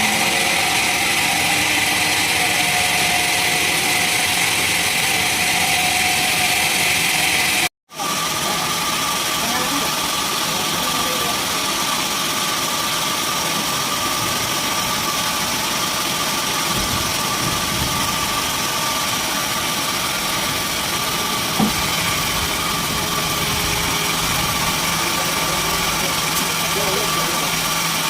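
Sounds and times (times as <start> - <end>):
constant machine whine: 0.0 - 28.0
sawmill machinery running: 0.0 - 28.0
short knock: 21.6 - 21.8.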